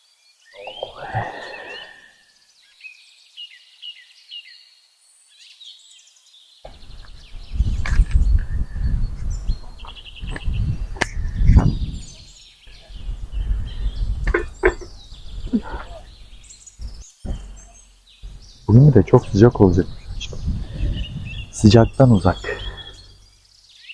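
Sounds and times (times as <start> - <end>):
small birds chirping: 0.0 - 23.9
loud low rumble: 18.3 - 22.0.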